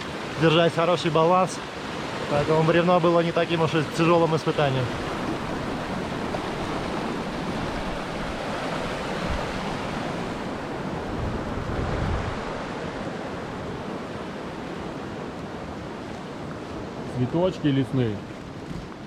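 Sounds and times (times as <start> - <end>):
rushing river water: 0.0 - 19.0.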